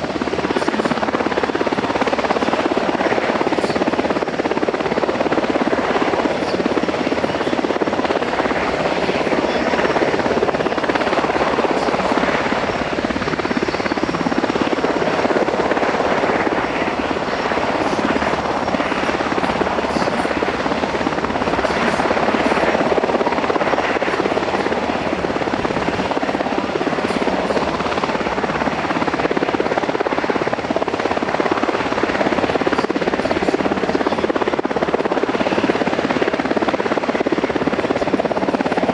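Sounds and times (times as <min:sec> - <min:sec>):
helicopter rotor and engine noise: 0:00.0 - 0:38.9.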